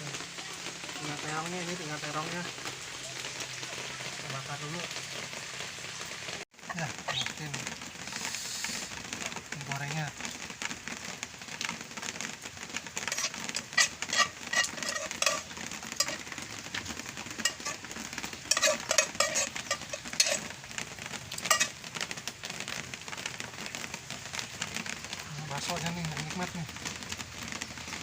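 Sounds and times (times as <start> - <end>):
noodles sizzling in a pan: 0.0 - 28.0
metal utensil scraping pan: 13.0 - 21.9.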